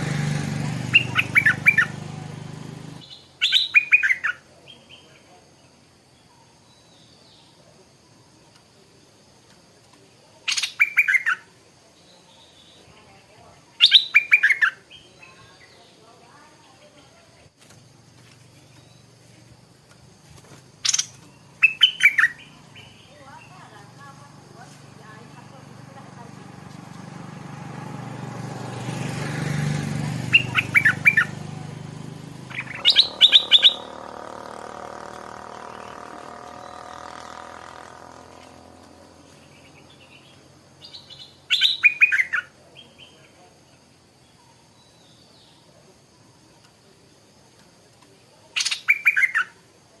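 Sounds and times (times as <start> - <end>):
bulbul singing: 0.0 - 5.3, 10.5 - 11.5, 12.3 - 16.9, 20.7 - 45.6, 48.6 - 49.6.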